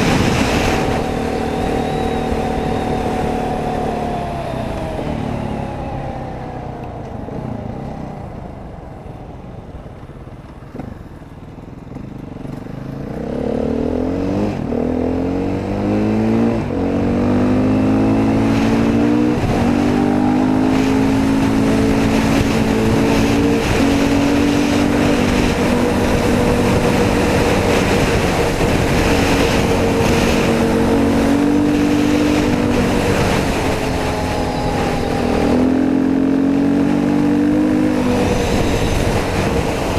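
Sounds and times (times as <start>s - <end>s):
dirt bike engine revving: 11.9s - 39.9s.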